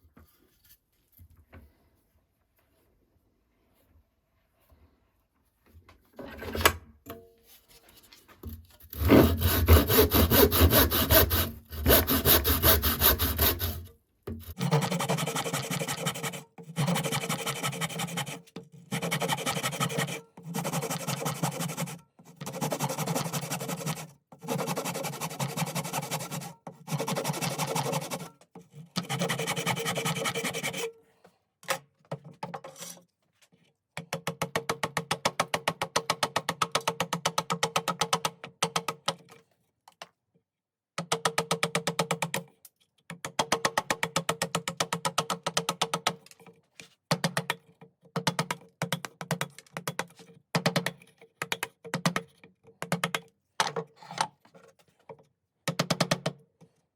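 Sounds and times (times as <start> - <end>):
hand tool scraping wooden handle: 8.0 - 30.9.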